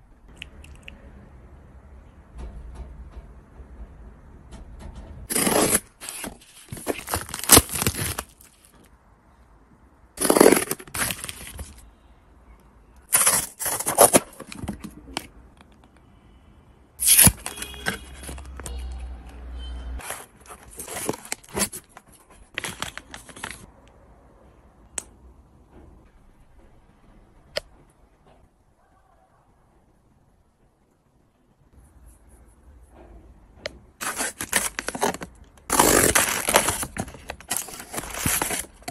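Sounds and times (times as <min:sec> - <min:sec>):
packaging tearing and crinkling: 0:05.3 - 0:08.8, 0:10.2 - 0:11.8, 0:13.1 - 0:14.8, 0:17.0 - 0:18.7, 0:20.0 - 0:23.7, 0:34.0 - 0:38.9.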